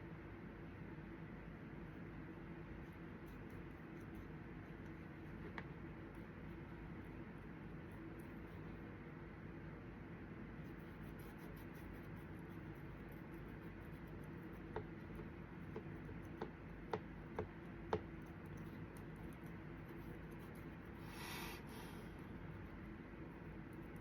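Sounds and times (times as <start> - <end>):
faint room hum: 0.0 - 24.0.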